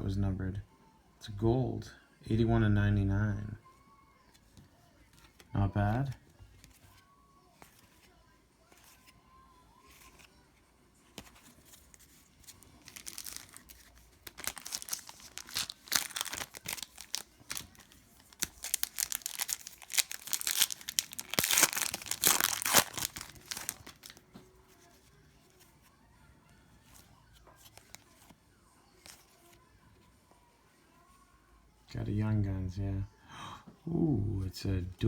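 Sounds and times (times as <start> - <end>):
wrapper tearing and crinkling: 11.9 - 24.2.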